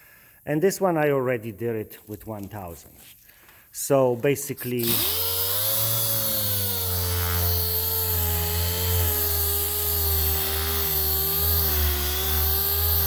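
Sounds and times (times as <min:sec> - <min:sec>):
electric sander on metal: 0:04.8 - 0:13.0.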